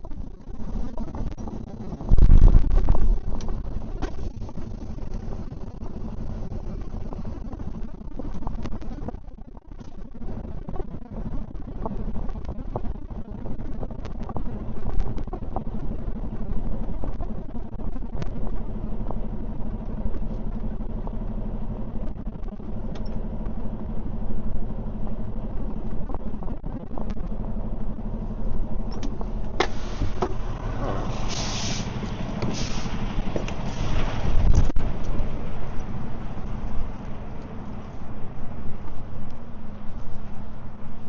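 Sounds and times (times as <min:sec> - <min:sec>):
diesel truck engine running: 0:00.0 - 0:41.0
short air hisses: 0:29.6 - 0:30.2, 0:30.9 - 0:33.0.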